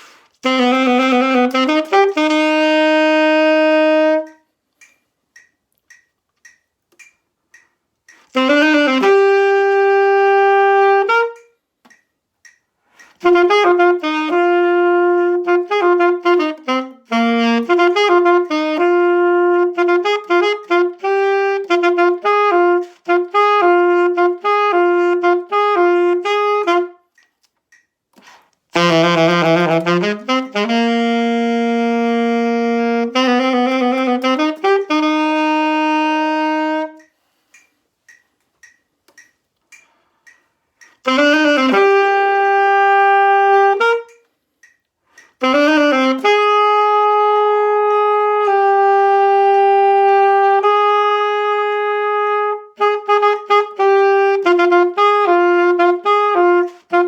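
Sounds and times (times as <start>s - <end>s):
solo saxophone melody: 0.0s - 4.9s, 8.1s - 11.7s, 12.9s - 27.3s, 28.2s - 37.6s, 40.2s - 44.4s, 45.1s - 57.0s.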